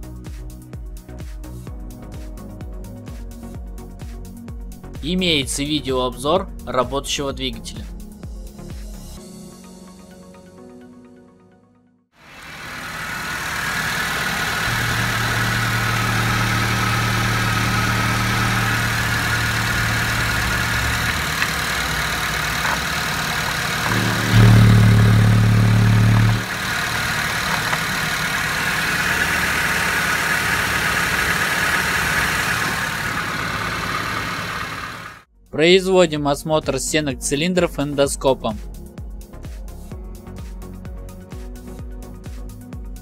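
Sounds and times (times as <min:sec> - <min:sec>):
car engine idling: 0:12.2 - 0:35.3
loud low hum: 0:12.3 - 0:35.2.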